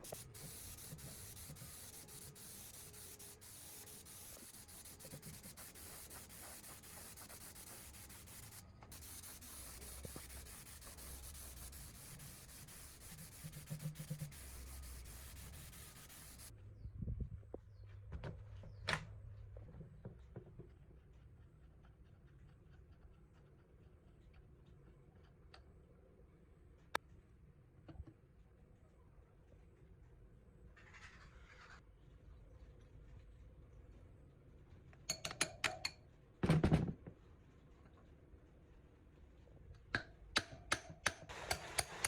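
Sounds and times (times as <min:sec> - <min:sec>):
sanding metal hiss: 0:00.0 - 0:16.5
clicks and taps of parts: 0:34.9 - 0:36.0, 0:39.7 - 0:42.0.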